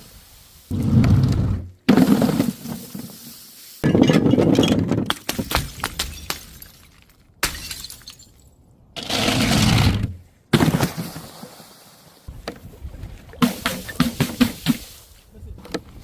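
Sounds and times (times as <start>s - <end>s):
glass bottles shattering: 3.8s - 8.5s.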